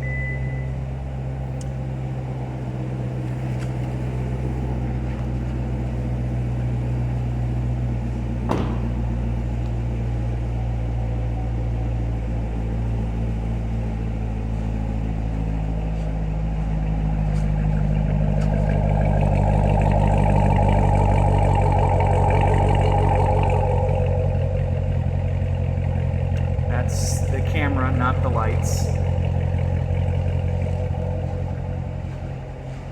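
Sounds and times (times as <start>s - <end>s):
car engine running: 0.0s - 32.9s.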